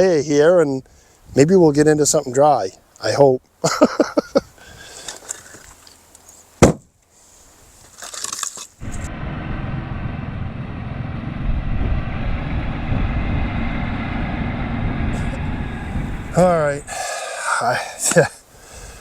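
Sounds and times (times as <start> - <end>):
sharp knock: 6.6 - 6.9
engine running: 8.8 - 17.2.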